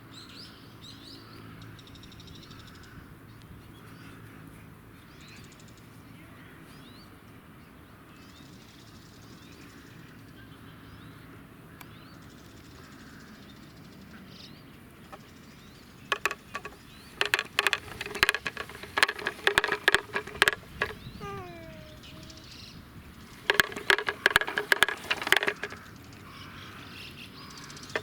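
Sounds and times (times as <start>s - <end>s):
faint birdsong: 0.0s - 28.0s
wooden toy clacking rattle: 16.0s - 22.6s, 23.2s - 26.0s, 27.7s - 28.0s.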